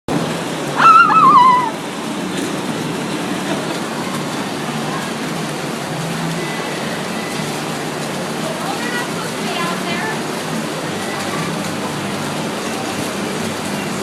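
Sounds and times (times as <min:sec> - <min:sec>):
heavy rain falling: 0:00.1 - 0:14.0
high wavering cry: 0:00.8 - 0:01.8.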